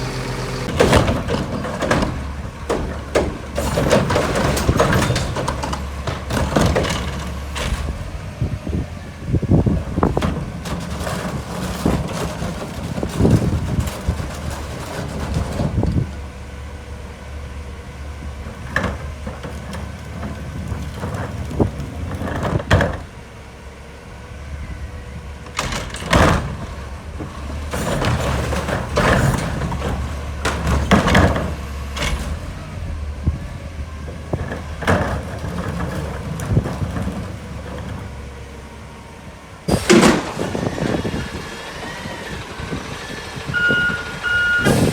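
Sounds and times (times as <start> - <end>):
metallic clanks and bangs: 0.0 - 8.2, 39.7 - 41.4
garbage truck diesel engine: 0.0 - 44.9.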